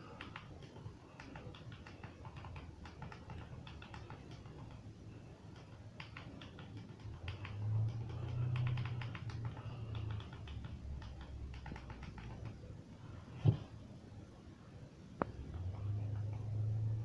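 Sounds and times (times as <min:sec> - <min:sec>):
toy pieces clicking and tapping: 0:00.1 - 0:04.9, 0:05.5 - 0:12.6.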